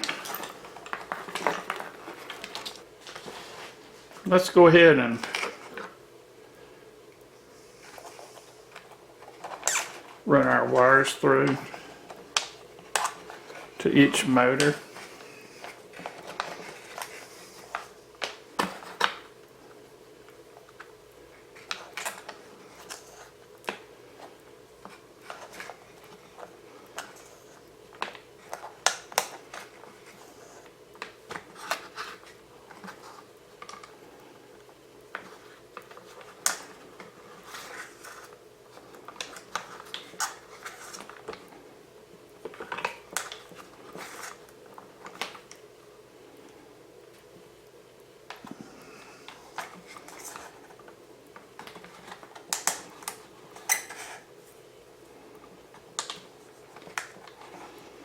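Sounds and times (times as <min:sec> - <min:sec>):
wires clicking and rustling: 0:00.0 - 0:06.0, 0:07.1 - 0:58.0
faint steady hum: 0:00.0 - 0:58.0.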